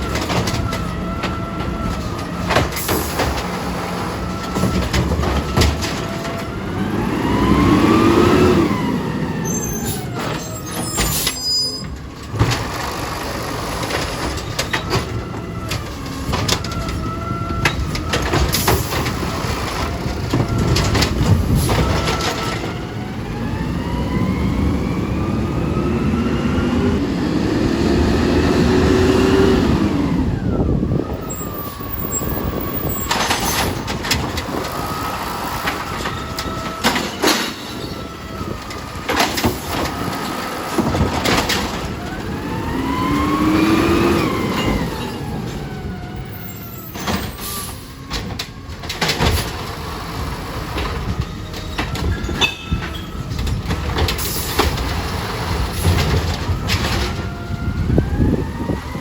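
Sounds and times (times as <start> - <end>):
garbage truck engine revving: 0.0 - 59.0
metal clanks and bangs: 50.7 - 57.4.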